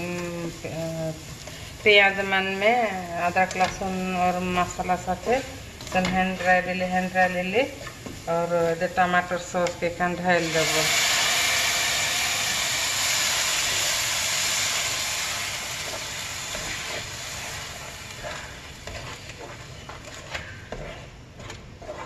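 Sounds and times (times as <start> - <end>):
sauce sizzling in hot oil: 0.0 - 19.6
spatula scraping pan: 15.7 - 22.0.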